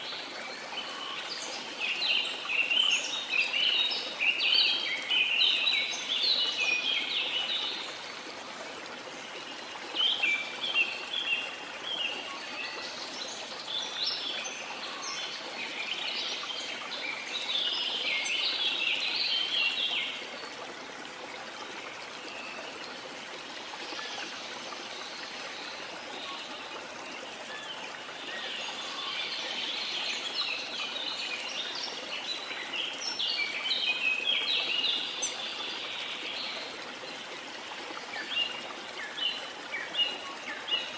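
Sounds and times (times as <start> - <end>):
forest birds chirping: 9.2 - 20.6, 21.5 - 40.9.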